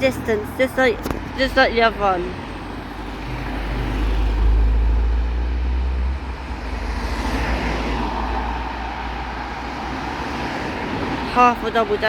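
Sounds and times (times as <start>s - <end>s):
passing vehicles: 0.0s - 12.0s
deep engine rumble: 2.3s - 11.3s.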